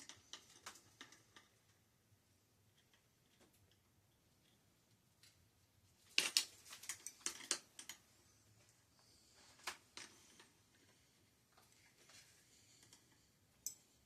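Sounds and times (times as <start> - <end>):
tools and bicycle parts clicking: 0.0 - 1.8, 6.2 - 8.1, 12.8 - 14.0.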